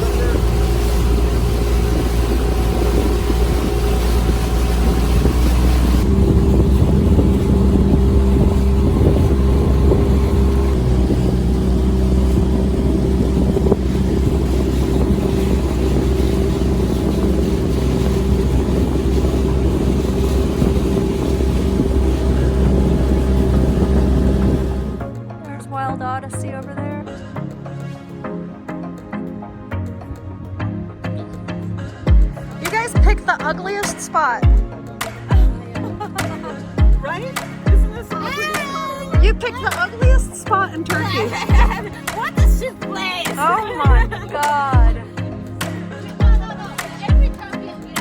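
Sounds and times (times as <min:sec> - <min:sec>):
boat engine droning: 0:00.0 - 0:25.1, 0:32.8 - 0:48.0
wind noise on microphone: 0:00.0 - 0:25.1.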